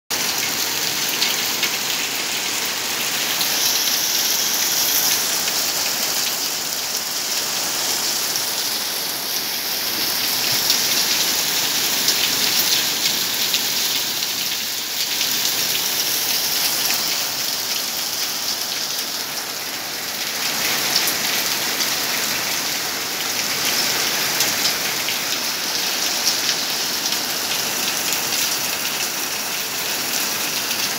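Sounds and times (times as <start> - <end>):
heavy rain: 0.1 - 30.9
raindrops ticking on hard surfaces: 10.0 - 19.7.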